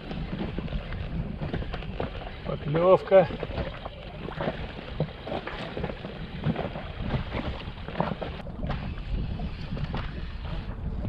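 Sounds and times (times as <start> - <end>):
water lapping against boat: 0.0 - 11.0
wind buffeting microphone: 0.0 - 11.0
light knocks and splashes: 3.0 - 8.9.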